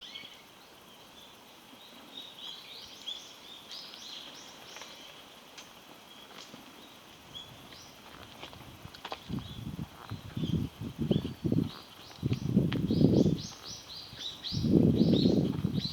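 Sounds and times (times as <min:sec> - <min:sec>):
faint outdoor background noise: 0:00.0 - 0:15.9
small birds chirping: 0:09.3 - 0:15.9.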